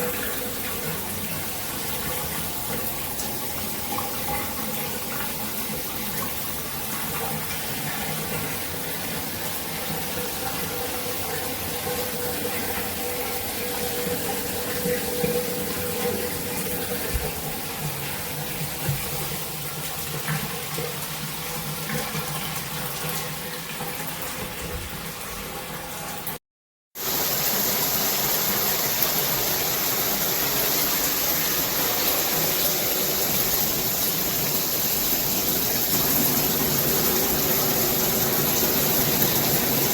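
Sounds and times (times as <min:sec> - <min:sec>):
shower spray running: 0:27.0 - 0:39.9.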